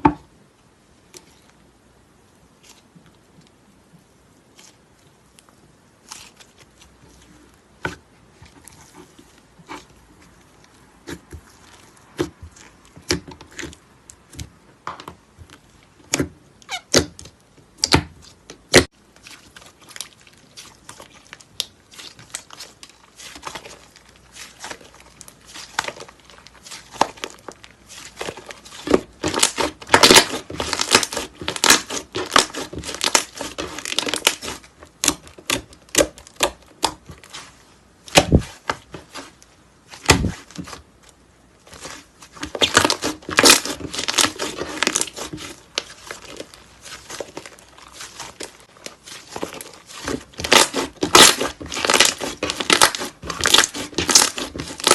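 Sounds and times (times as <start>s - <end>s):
slime squishing and popping: 11.0s - 39.2s, 41.7s - 54.9s.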